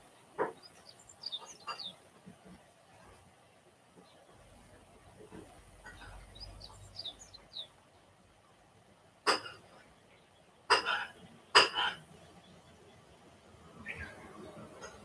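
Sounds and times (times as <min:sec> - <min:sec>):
bird chirping: 0:00.4 - 0:02.2, 0:05.8 - 0:08.1, 0:09.6 - 0:15.0.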